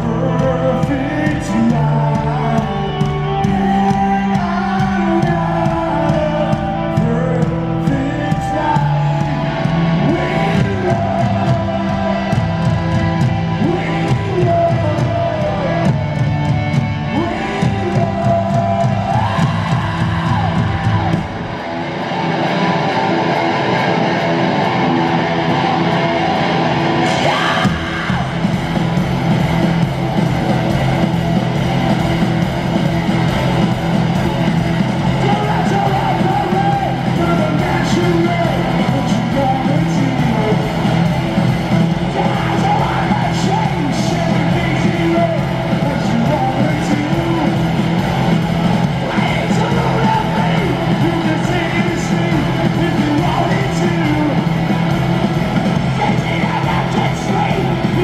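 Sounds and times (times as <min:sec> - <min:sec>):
person singing: 0:00.0 - 0:16.3, 0:17.0 - 0:21.2, 0:26.8 - 0:28.6, 0:35.0 - 0:40.9, 0:41.9 - 0:47.8, 0:48.8 - 0:54.8, 0:55.6 - 0:58.0
live rock band playing: 0:00.0 - 0:58.0.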